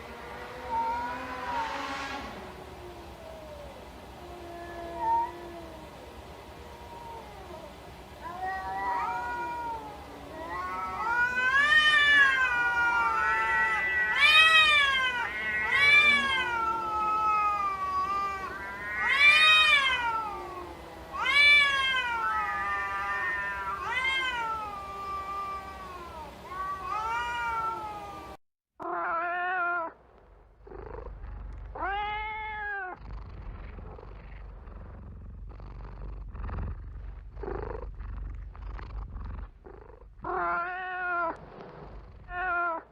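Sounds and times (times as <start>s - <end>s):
cats meowing: 0.6s - 1.9s, 2.8s - 6.0s, 6.6s - 30.0s, 30.7s - 33.0s, 39.7s - 41.4s, 42.2s - 42.9s
soft low rumble: 29.9s - 40.7s.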